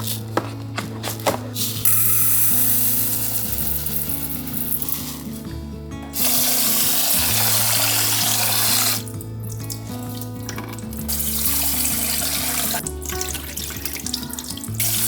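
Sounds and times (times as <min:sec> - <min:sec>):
soft background music: 0:00.0 - 0:15.0
tap water running into sink: 0:06.2 - 0:15.0.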